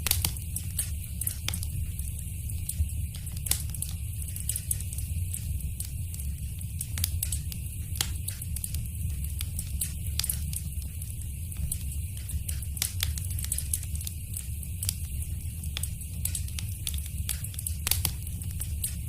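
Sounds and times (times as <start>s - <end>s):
fire crackling and popping: 0.0s - 19.0s.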